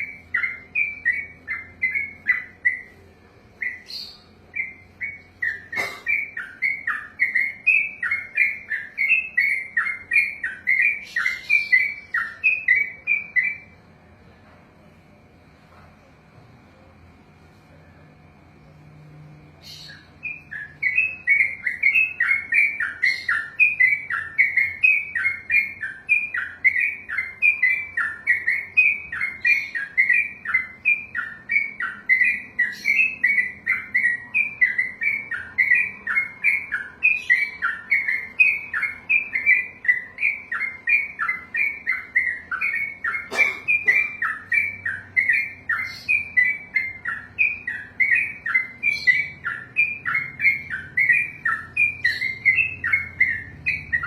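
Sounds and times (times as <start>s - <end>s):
bird singing falling notes: 19.6s - 54.0s.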